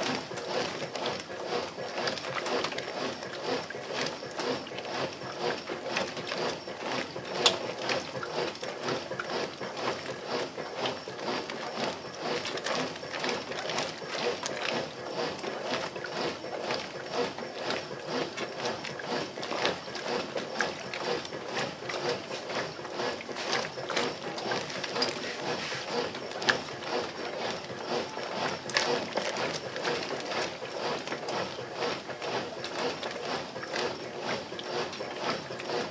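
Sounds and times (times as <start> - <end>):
churning water: 0.0 - 35.9
washing machine motor clicking: 0.0 - 35.9.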